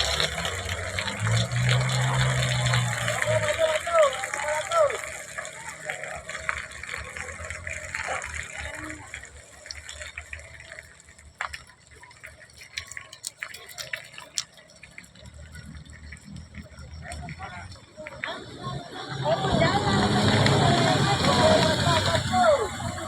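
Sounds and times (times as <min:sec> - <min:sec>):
running water: 0:00.0 - 0:23.0
sharp water drips: 0:00.0 - 0:23.0.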